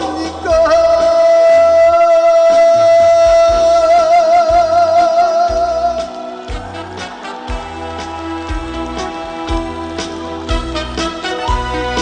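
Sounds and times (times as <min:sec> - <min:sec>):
man singing long note: 0:00.0 - 0:06.4
backing music with bass and drums: 0:00.0 - 0:12.0.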